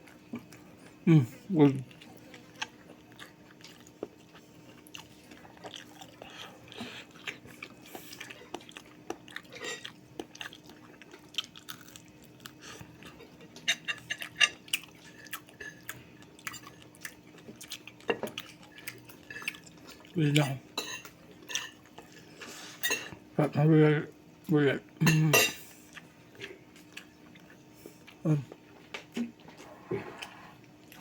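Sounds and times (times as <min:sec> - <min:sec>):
person chewing crunchy food: 0:00.0 - 0:01.0, 0:01.7 - 0:20.5, 0:25.7 - 0:31.0
faint steady hum: 0:00.0 - 0:31.0.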